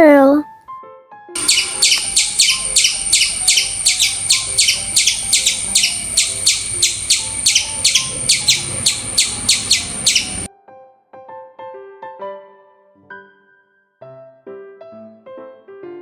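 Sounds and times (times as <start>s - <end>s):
squirrel chirping: 1.4s - 10.5s.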